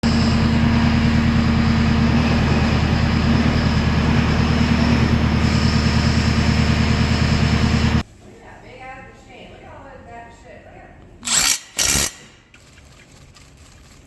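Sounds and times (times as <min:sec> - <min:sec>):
tractor engine running: 0:00.0 - 0:08.0.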